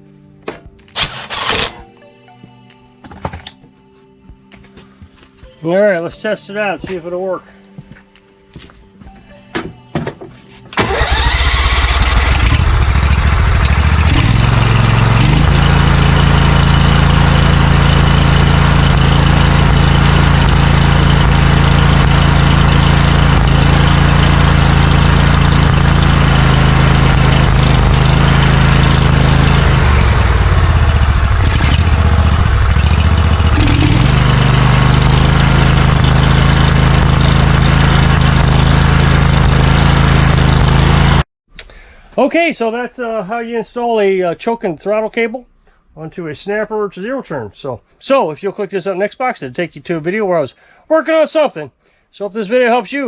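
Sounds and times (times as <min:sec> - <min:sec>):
mower engine running: 0:01.0 - 0:01.9, 0:10.7 - 0:41.3.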